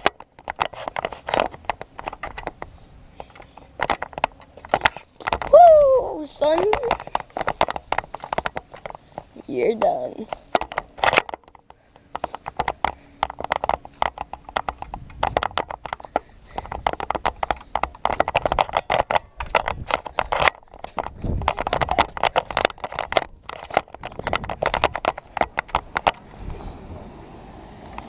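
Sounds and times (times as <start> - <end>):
camera mount rattling: 0.0 - 5.5, 6.4 - 26.5.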